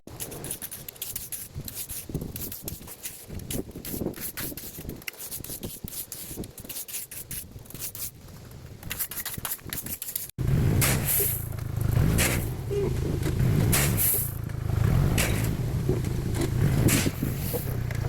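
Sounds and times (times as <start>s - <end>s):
gravel scraping and crunching: 0.1s - 18.0s
atv engine running: 10.4s - 18.0s.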